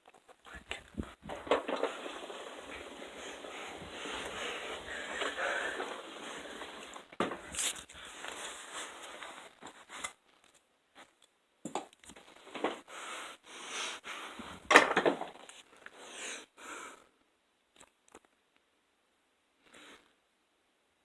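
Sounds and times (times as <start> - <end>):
rustling crinkling handling noise: 0.0 - 11.2.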